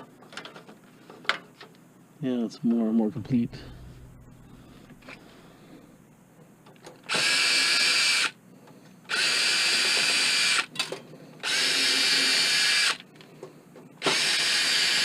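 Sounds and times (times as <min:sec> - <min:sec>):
power drill whining: 0:07.1 - 0:08.4, 0:09.1 - 0:10.7, 0:11.4 - 0:13.0, 0:14.0 - 0:15.0.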